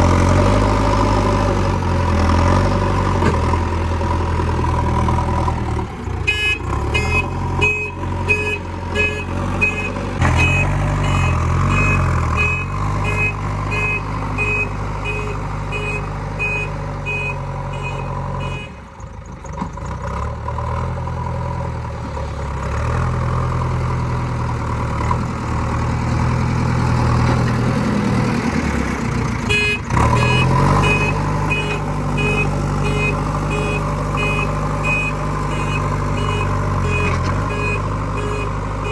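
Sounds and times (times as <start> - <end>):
diesel engine revving: 0.0 - 38.9
reversing alarm beeping: 6.3 - 18.7, 29.5 - 38.9.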